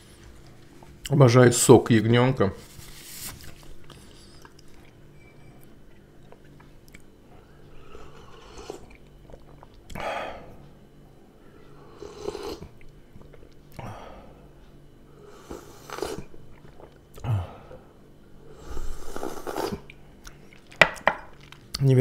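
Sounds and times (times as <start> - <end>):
person chewing: 3.8 - 5.0, 5.9 - 7.1, 7.8 - 10.0, 15.4 - 17.3, 18.7 - 21.8.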